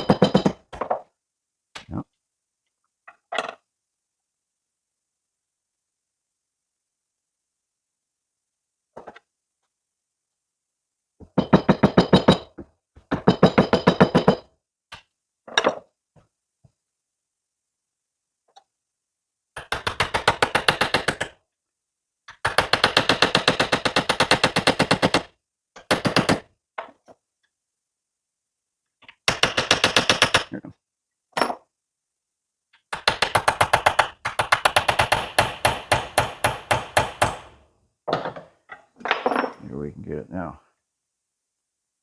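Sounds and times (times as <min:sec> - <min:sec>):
power tool hammering: 0:33.0 - 0:37.6.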